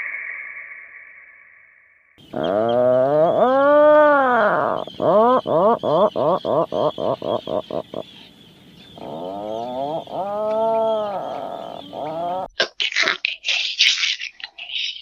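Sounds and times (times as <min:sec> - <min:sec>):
animal calling: 0:02.2 - 0:12.5.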